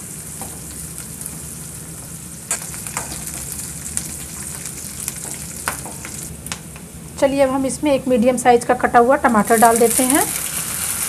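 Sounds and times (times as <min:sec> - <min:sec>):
onions sizzling in oil: 0:00.0 - 0:06.4, 0:09.2 - 0:11.0.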